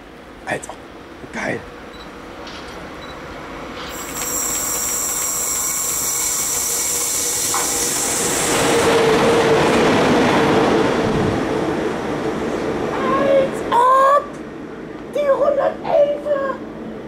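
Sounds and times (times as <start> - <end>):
locomotive passing: 3.4 - 13.7
high hiss from rails: 3.7 - 8.9.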